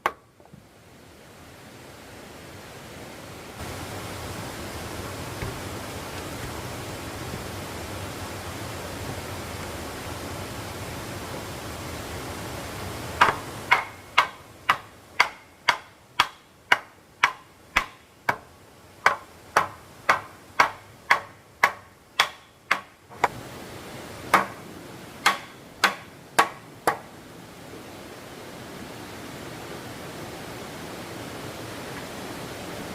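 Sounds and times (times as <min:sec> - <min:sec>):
hand tool knocking on wood: 0:13.2 - 0:23.3, 0:24.3 - 0:24.6, 0:25.2 - 0:27.0.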